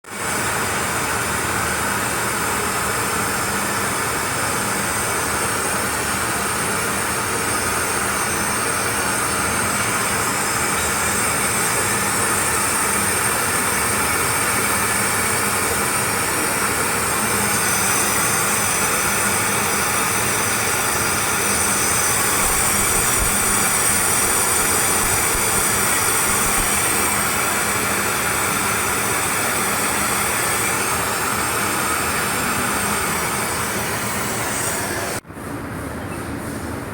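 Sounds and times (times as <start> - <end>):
torch flame hissing: 7.8 - 35.2.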